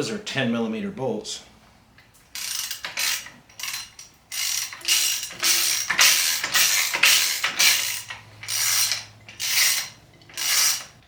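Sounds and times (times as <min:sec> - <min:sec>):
ratchet wrench clicking: 0:02.3 - 0:11.0.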